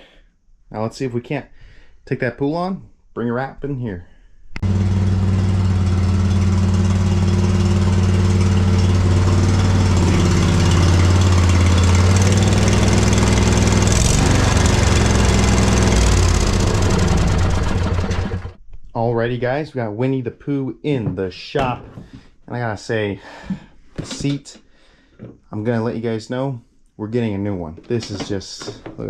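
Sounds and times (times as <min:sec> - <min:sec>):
riding mower engine running: 0:04.6 - 0:18.6.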